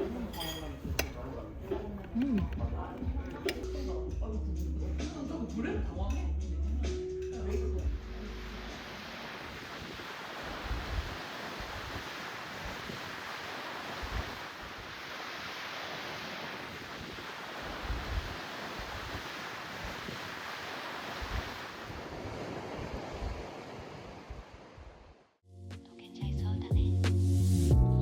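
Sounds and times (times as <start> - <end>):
wind and surf rushing: 7.9 - 25.4
wind buffeting microphone: 9.7 - 24.8.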